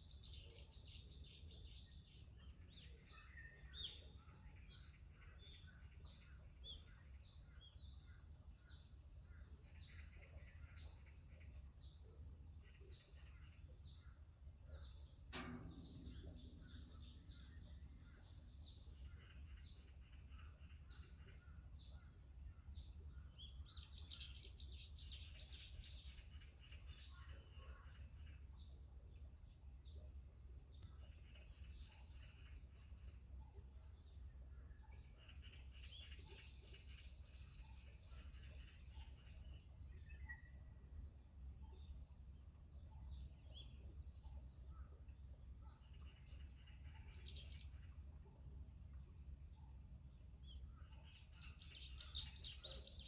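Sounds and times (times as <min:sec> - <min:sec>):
small birds chirping: 0:00.0 - 0:53.0
sharp click: 0:15.3 - 0:17.8.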